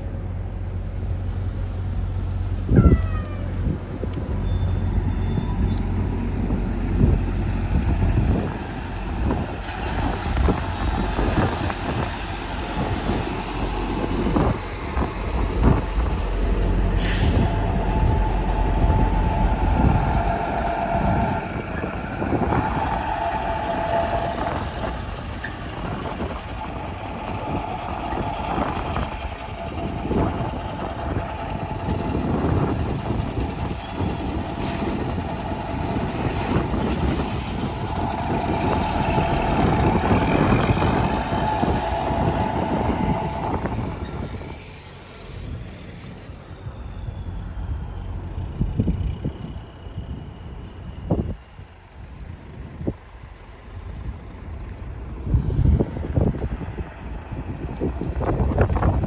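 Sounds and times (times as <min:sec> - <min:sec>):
trucks passing on road: 0:00.0 - 0:59.0
air brake hiss: 0:16.9 - 0:18.2, 0:36.8 - 0:38.6, 0:41.2 - 0:46.7.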